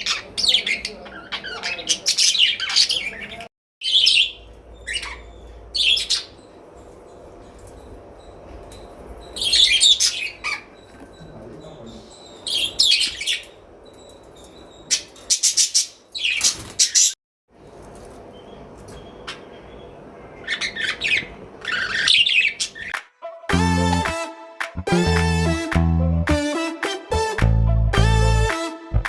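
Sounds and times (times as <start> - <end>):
birds chirping: 0.0 - 17.2, 18.2 - 23.0.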